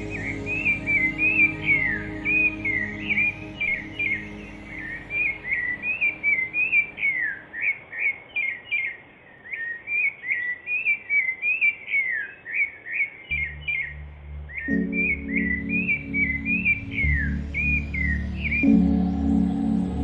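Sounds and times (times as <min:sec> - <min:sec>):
soft sustained music tones: 0:00.0 - 0:08.2, 0:13.3 - 0:20.0
songbird chirping: 0:00.0 - 0:20.0.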